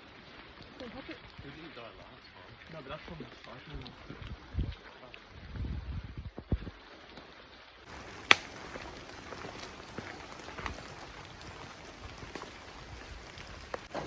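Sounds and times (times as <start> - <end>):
light rain hiss: 6.0 - 14.0
raindrops ticking: 7.9 - 13.9.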